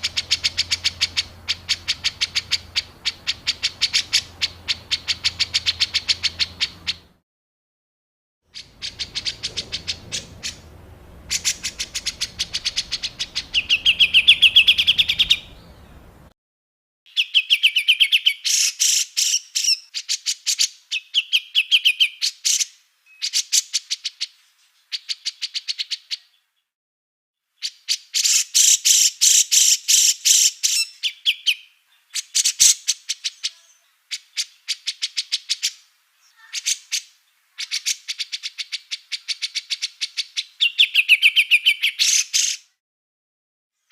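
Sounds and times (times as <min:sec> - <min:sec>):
songbirds harsh chattering: 0:00.0 - 0:07.1, 0:08.6 - 0:16.3
low background rumble: 0:08.6 - 0:16.3.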